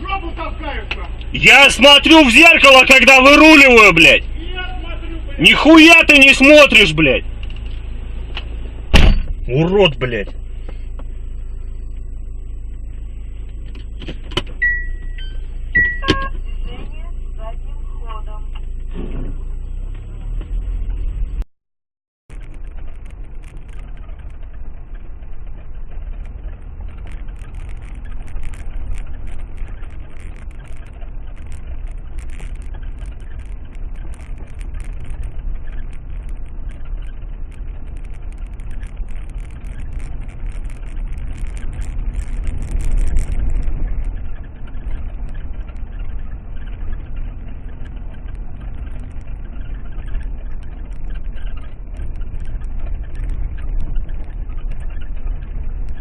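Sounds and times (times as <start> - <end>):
car engine and road rumble: 0.0 - 21.5, 22.2 - 56.0
faint clicks and rattles: 22.3 - 56.0.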